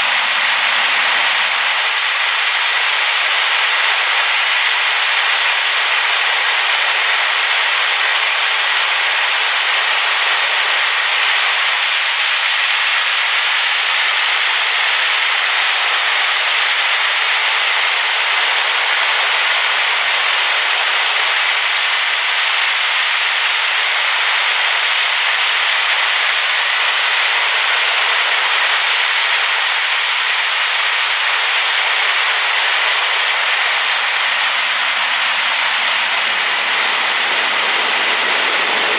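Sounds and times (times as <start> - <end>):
waterfall hissing: 0.0 - 38.9.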